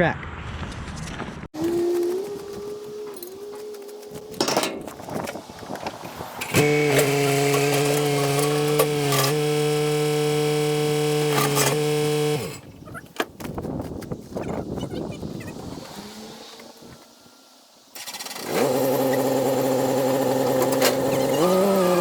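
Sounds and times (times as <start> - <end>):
excavator running: 1.6 - 13.0.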